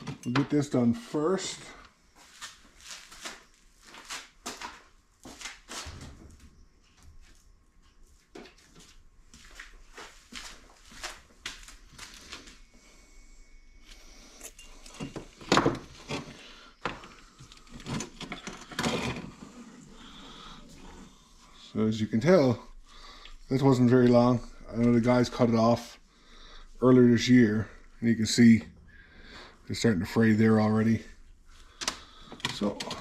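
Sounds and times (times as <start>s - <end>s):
hand tools and metal parts rattling: 0.0s - 0.9s, 14.2s - 19.6s.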